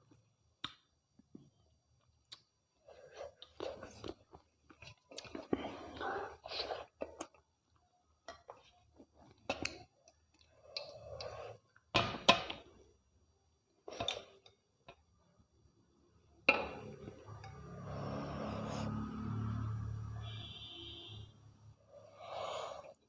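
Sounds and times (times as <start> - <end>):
soft chewing: 0.1 - 11.9.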